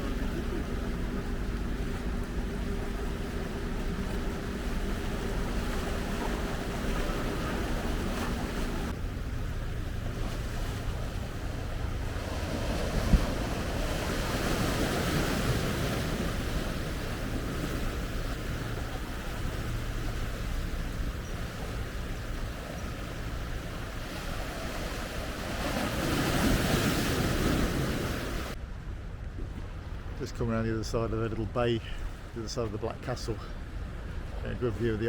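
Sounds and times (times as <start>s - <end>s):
low hum: 0.0s - 25.6s
water washing against shore: 0.0s - 28.6s.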